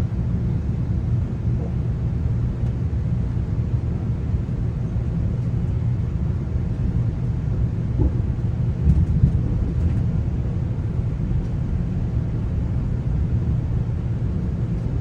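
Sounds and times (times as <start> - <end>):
train coach rumbling on track: 0.0 - 15.0
train bumps: 7.9 - 10.3.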